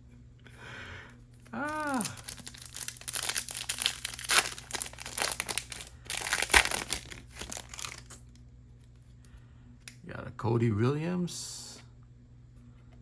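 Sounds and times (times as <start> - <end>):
foil wrapper crinkling and tearing: 1.4 - 8.3.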